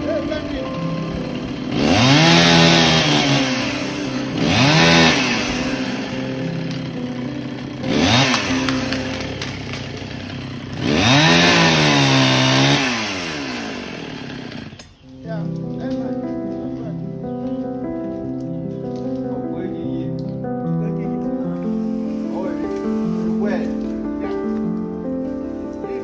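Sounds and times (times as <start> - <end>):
chainsaw idling and revving: 0.0 - 15.0.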